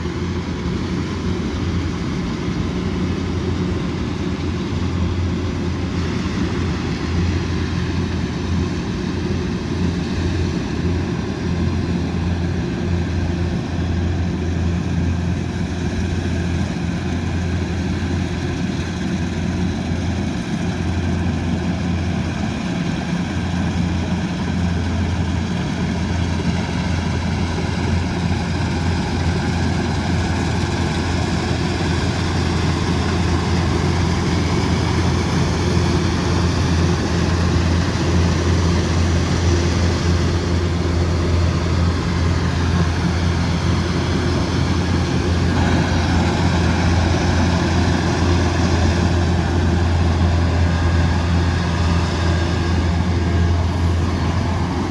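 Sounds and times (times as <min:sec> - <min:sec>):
diesel engine droning under load: 0:00.0 - 0:54.9
harvesting machinery clatter: 0:11.5 - 0:54.9.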